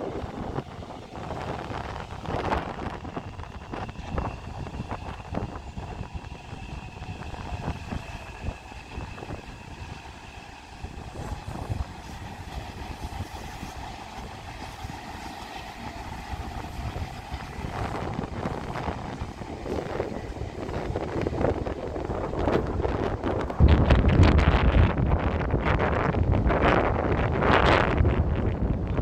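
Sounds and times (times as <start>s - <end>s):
train wheels rumbling and clattering: 0.0s - 29.0s.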